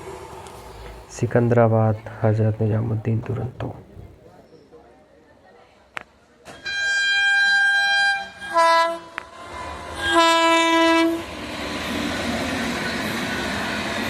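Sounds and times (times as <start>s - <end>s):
train rumbling past: 0.0s - 4.2s, 6.6s - 14.0s
locomotive horn blasts: 6.5s - 9.4s, 10.0s - 11.3s.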